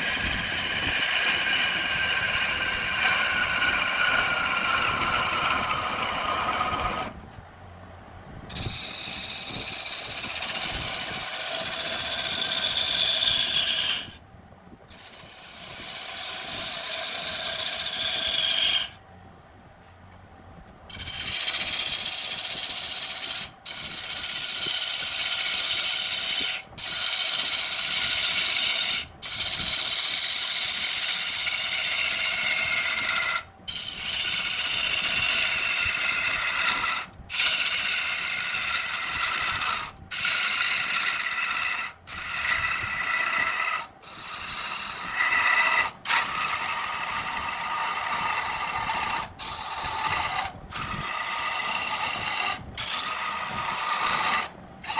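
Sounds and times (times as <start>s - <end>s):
lathe tool chattering on wood: 0.0s - 7.1s, 24.0s - 54.9s.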